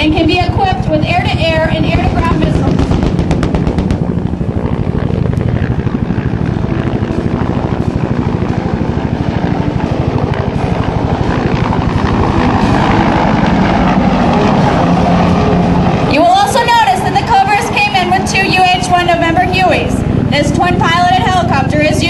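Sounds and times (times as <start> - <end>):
helicopter rotors beating: 0.0 - 22.0.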